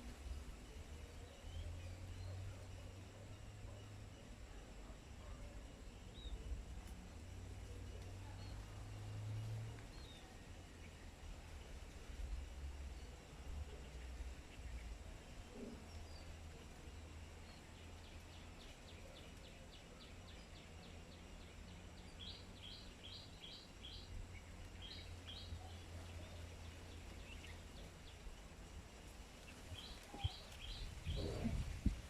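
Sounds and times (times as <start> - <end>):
bird chirping: 12.8 - 28.4, 29.4 - 31.7
low thumps or rustles: 30.8 - 32.0.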